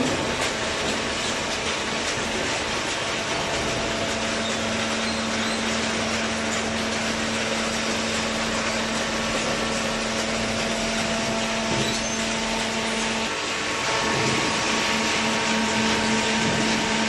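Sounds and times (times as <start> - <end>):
baler motor hum: 0.0 - 17.0.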